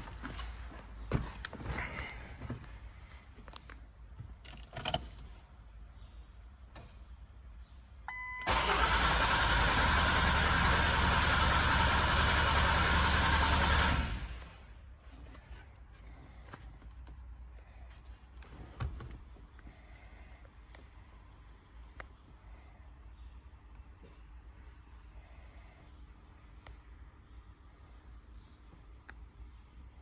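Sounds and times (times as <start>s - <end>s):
car engine cranking: 8.4s - 14.6s.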